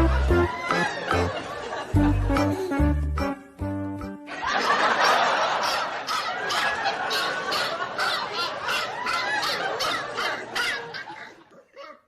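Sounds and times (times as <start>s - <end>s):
laughter: 0.0s - 2.9s, 4.3s - 11.7s
music with steady beat: 0.0s - 4.3s.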